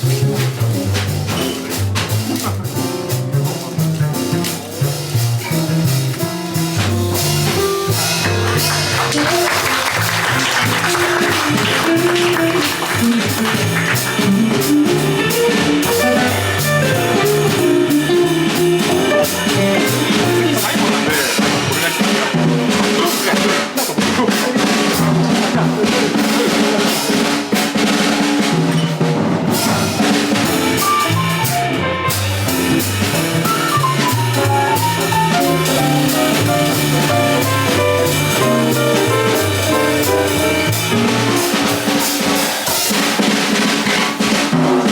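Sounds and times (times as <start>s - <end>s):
bass notes: 0.0s - 23.0s, 29.4s - 42.2s
drum kit: 0.0s - 44.9s.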